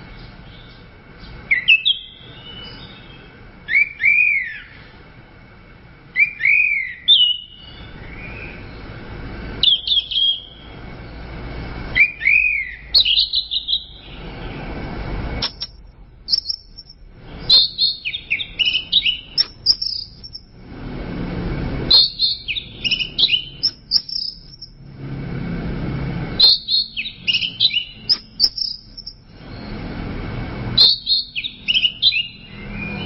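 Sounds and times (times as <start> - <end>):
low rushing noise: 7.8 - 13.0, 14.0 - 16.3, 18.5 - 23.6, 24.7 - 26.4, 29.2 - 30.8
thrush singing: 16.3 - 33.0.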